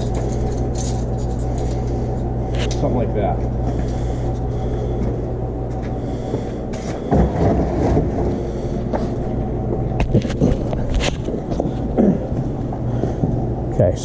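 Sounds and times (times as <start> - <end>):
metal clicks and clatters: 0.0 - 2.0
low machine hum: 0.0 - 14.0.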